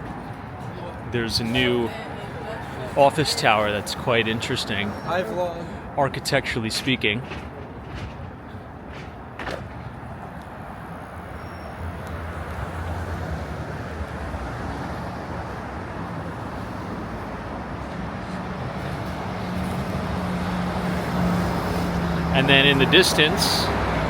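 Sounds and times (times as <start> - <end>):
traffic passing: 0.0 - 24.0.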